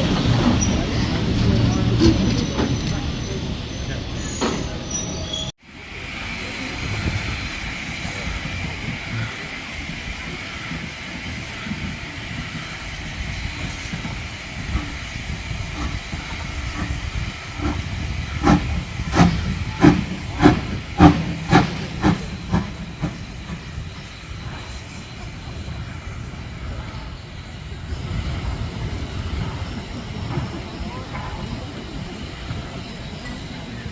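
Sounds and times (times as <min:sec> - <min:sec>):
steam locomotive hiss and rumble: 0:00.0 - 0:33.9
sharp exhaust beats: 0:14.6 - 0:24.1.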